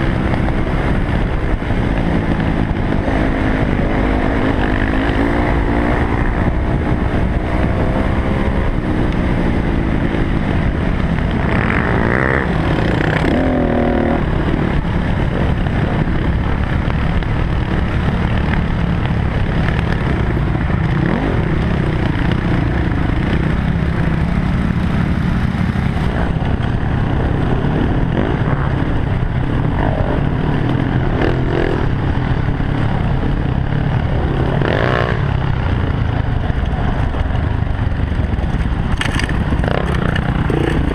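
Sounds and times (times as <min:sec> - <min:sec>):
dirt bike engine revving: 0:11.3 - 0:14.4, 0:39.6 - 0:40.9.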